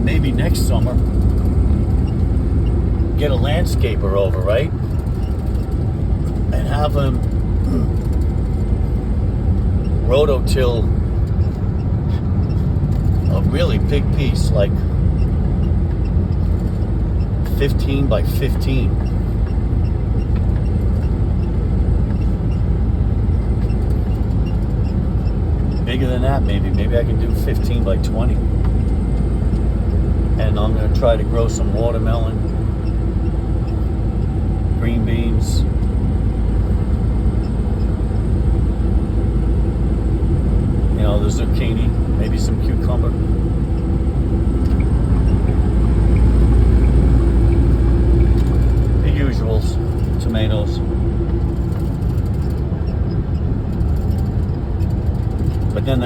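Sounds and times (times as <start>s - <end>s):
truck engine and tyres rumbling: 0.0s - 56.0s
faint regular ticks: 44.5s - 55.9s.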